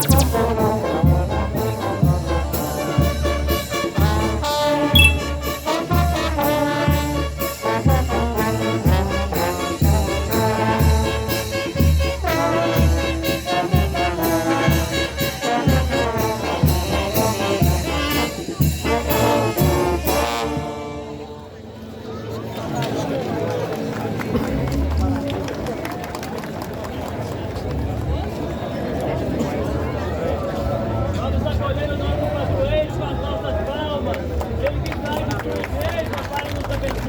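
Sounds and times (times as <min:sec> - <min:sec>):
brass band playing: 0:00.0 - 0:21.3
bass drum and cymbals beat: 0:05.0 - 0:06.2.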